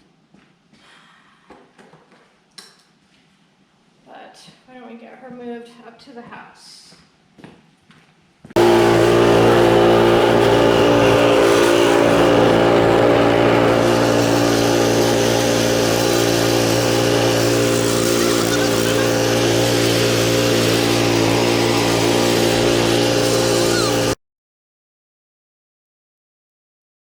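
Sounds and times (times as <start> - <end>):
snow thrower engine running: 8.6 - 24.2.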